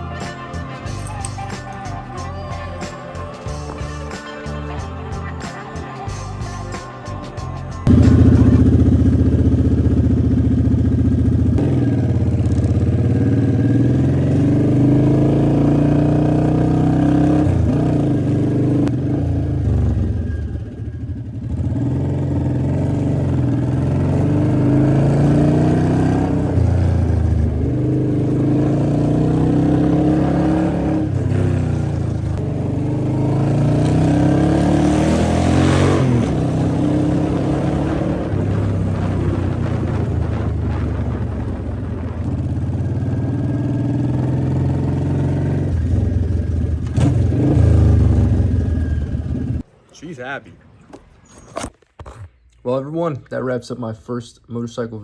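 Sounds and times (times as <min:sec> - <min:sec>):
motorcycle engine revving: 0:07.8 - 0:49.7.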